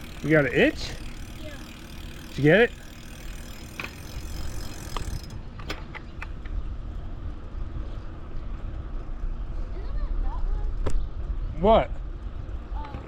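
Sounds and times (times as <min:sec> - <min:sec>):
bicycle clicking: 0:00.0 - 0:09.8.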